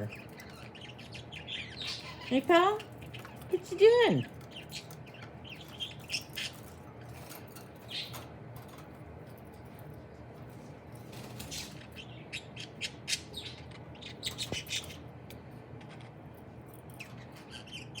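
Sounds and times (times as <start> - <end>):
budgerigar chirping and squawking: 0.0 - 7.0, 11.4 - 15.1, 17.0 - 18.0.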